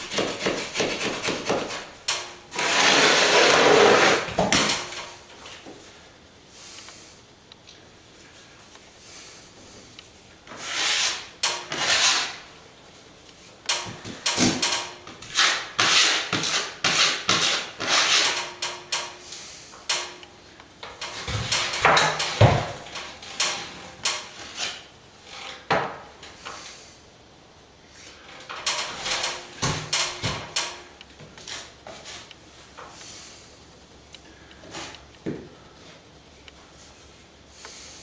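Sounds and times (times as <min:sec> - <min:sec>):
hand tool scraping wet cement: 0:00.0 - 0:01.9, 0:02.5 - 0:04.9, 0:10.5 - 0:12.5, 0:15.2 - 0:18.5
heavy knocks: 0:21.2 - 0:22.9.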